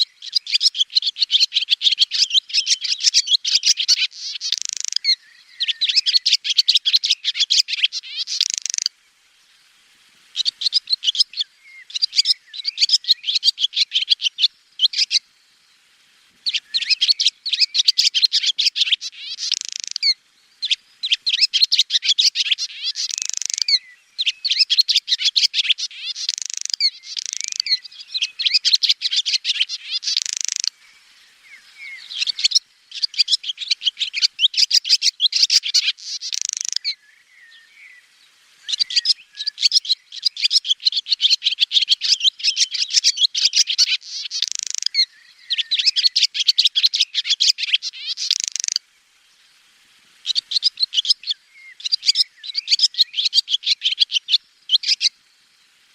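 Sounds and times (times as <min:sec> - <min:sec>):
swallow twittering: 0:00.0 - 0:08.9, 0:10.4 - 0:15.2, 0:16.4 - 0:48.8, 0:50.2 - 0:55.2.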